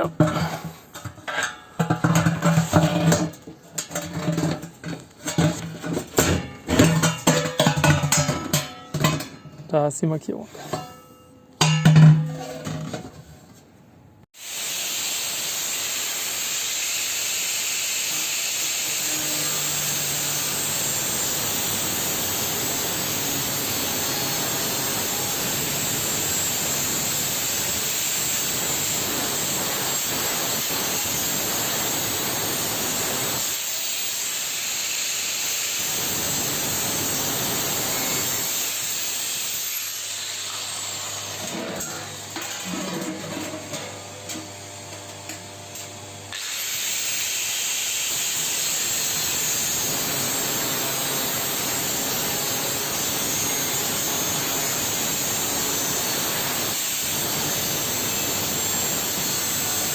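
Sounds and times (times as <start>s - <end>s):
angle grinder cutting metal: 15.2s - 44.5s, 45.3s - 59.9s.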